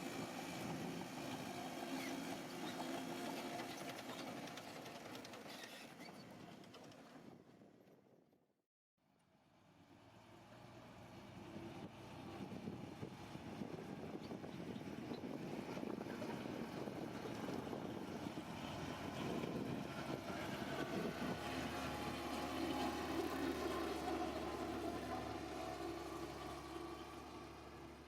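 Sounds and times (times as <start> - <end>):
heavy diesel engine running: 11.4 - 28.0.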